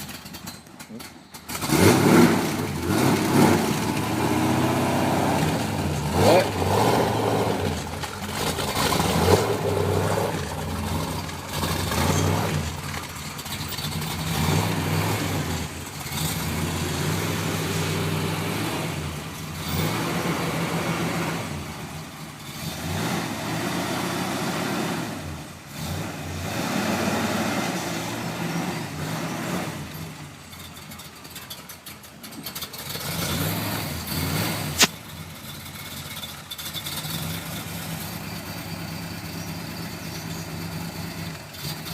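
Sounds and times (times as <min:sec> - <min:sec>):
car engine revving: 0:00.0 - 0:41.9
sharp click: 0:34.8 - 0:35.0.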